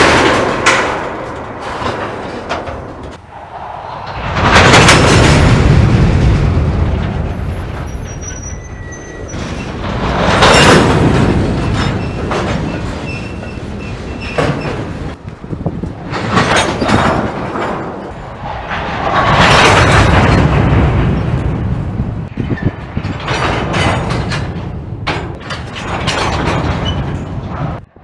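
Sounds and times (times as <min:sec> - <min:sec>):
couplers clanking and banging: 0:00.0 - 0:03.2, 0:16.1 - 0:21.5, 0:22.3 - 0:27.8
steel wheels rumbling on rails: 0:00.0 - 0:28.0.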